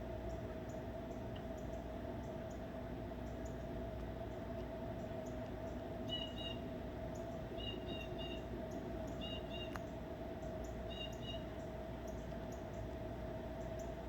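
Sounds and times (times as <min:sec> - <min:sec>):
steady low hum: 0:00.0 - 0:14.0
small bird chirping: 0:10.6 - 0:11.4.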